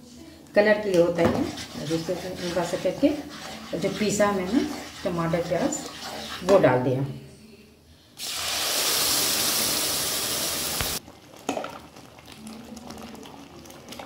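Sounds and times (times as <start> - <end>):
paste sizzling in hot oil: 8.2 - 11.0.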